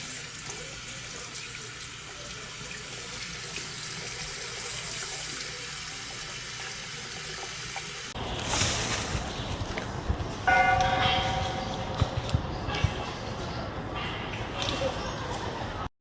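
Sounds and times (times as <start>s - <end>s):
loud hiss: 8.4s - 9.6s.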